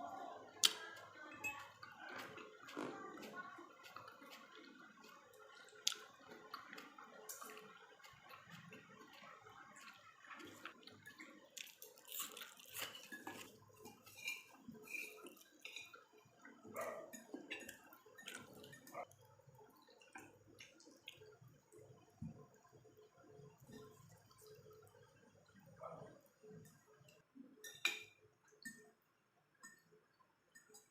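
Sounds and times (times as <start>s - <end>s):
wet chewing: 0.5s - 15.9s.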